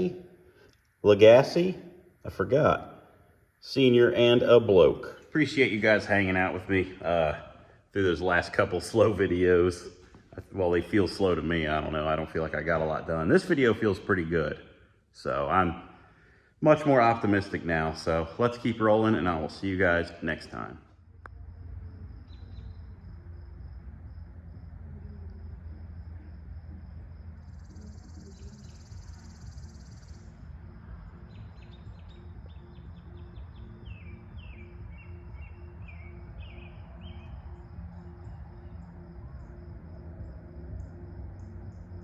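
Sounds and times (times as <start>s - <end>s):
insects chirping: 0.0s - 42.0s
low hum: 21.0s - 42.0s.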